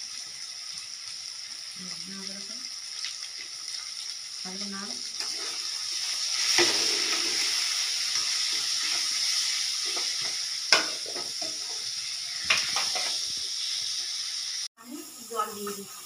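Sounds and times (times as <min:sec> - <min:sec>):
paste sizzling in hot oil: 0:00.0 - 0:16.0
metal spatula clanking on pan: 0:09.9 - 0:11.6.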